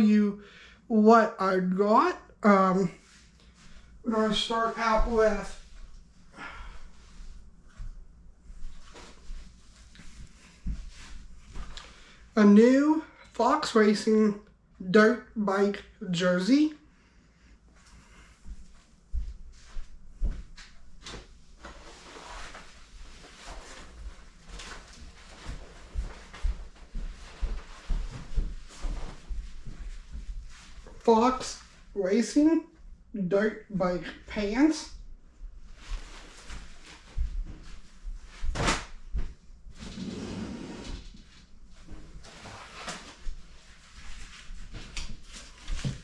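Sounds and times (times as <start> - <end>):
clothing rustling: 2.8 - 12.3, 17.7 - 32.0, 35.4 - 46.0.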